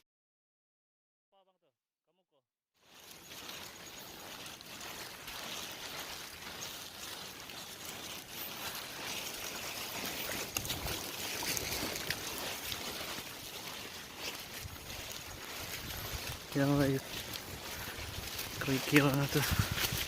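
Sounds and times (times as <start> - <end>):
rushing water: 4.4 - 20.0.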